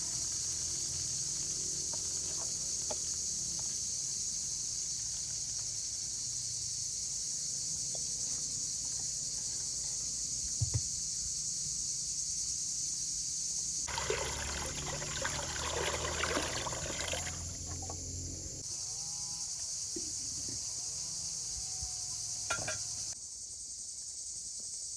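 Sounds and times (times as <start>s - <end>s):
insects chirring: 0.0s - 24.9s
water splashing and trickling: 13.9s - 18.6s.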